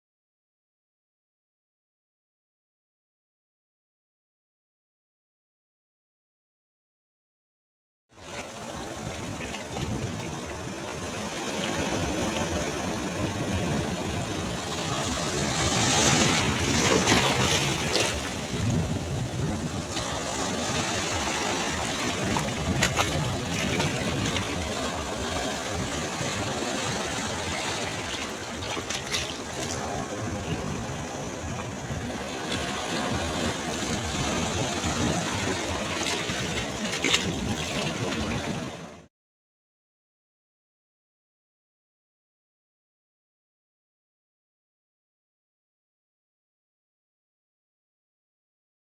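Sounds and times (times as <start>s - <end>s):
ocean surf washing: 8.2s - 39.0s.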